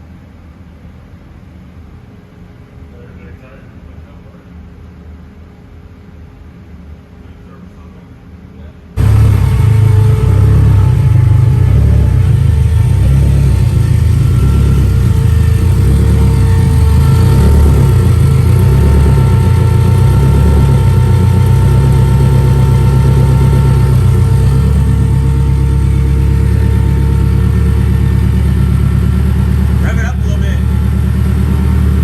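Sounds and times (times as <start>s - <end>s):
car engine droning: 9.0s - 32.0s.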